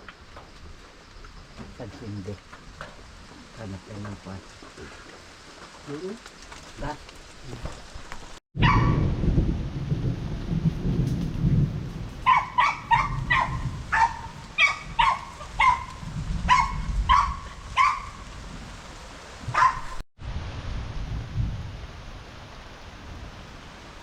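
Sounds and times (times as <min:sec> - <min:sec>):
dog barking: 0:08.6 - 0:09.0, 0:12.2 - 0:18.2, 0:19.5 - 0:20.0.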